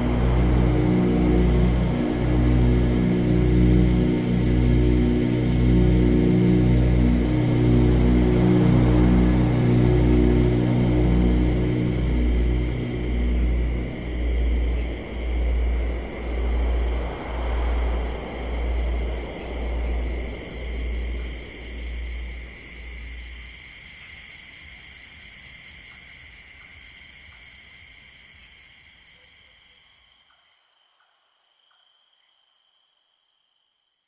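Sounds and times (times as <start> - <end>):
low droning pulse: 0.0 - 23.4
high cricket-like tones: 0.0 - 34.0.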